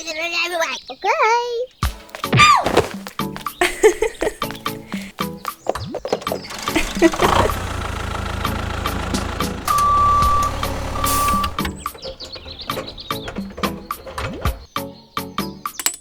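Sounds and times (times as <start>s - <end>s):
vehicle engine running: 6.3s - 14.7s.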